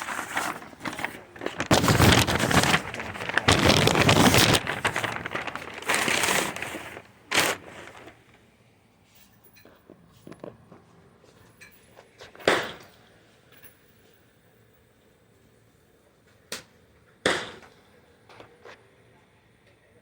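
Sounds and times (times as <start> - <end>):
loud rustling and crackling: 0.0 - 8.4.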